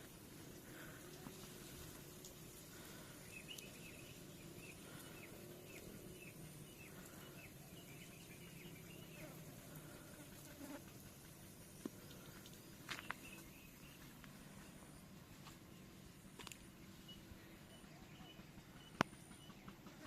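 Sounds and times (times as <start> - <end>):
low background noise: 0.0 - 20.0
bird chirping: 2.4 - 9.4, 12.6 - 14.8, 16.8 - 20.0.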